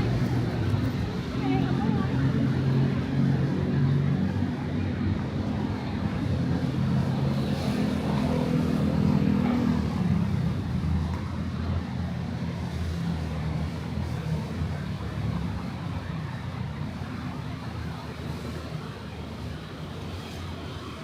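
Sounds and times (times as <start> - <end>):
vehicle engines humming: 0.0 - 21.0.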